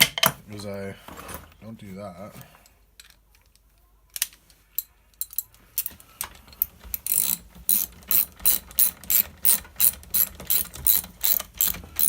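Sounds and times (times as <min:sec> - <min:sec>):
ratchet wrench clicking: 0:04.8 - 0:06.0, 0:06.6 - 0:12.0.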